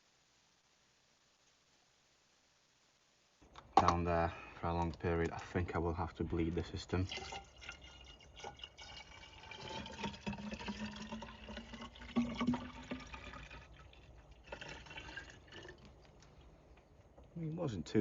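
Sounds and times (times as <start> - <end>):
drips: 6.3 - 16.8
fluid pouring and gurgling: 6.4 - 16.2.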